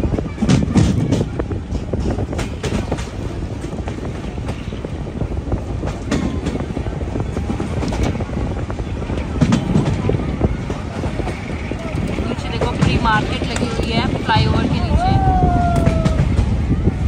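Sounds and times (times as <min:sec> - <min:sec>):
train running low rumble: 0:00.0 - 0:17.0
sharp clanks and rattles: 0:00.3 - 0:05.0, 0:05.8 - 0:14.5.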